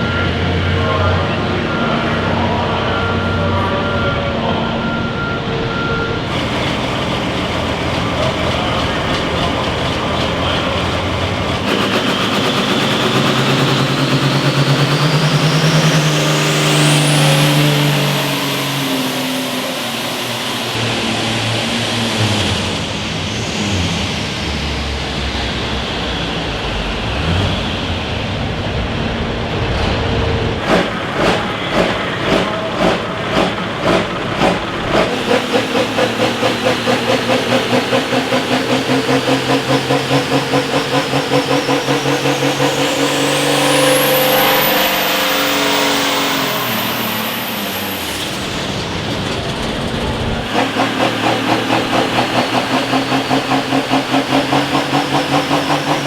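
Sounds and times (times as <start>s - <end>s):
regular pulsing: 0.0s - 20.8s, 30.6s - 48.9s
high whine: 0.0s - 56.0s
vehicle engine running: 4.8s - 56.0s.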